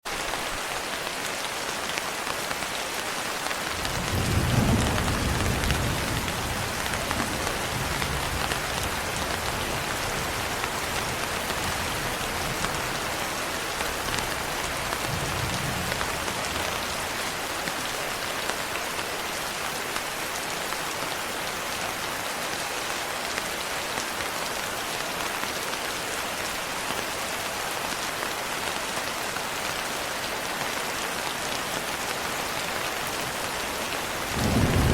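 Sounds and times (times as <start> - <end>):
steady rain falling: 0.0 - 34.9
thunder rolling: 34.2 - 34.9.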